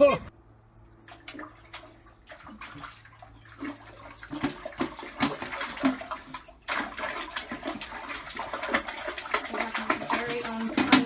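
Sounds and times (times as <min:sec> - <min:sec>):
water splashing and sloshing: 0:00.8 - 0:11.0.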